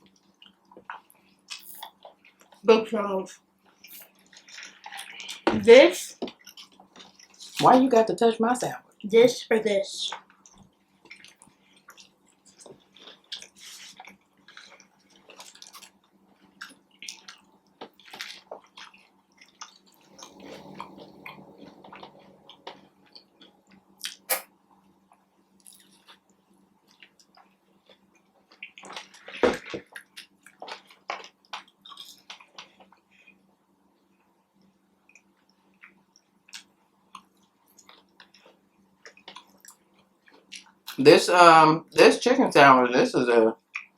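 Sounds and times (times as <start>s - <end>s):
person biting and chewing food: 0.0s - 2.2s, 11.0s - 22.6s, 23.2s - 24.5s, 25.6s - 26.2s.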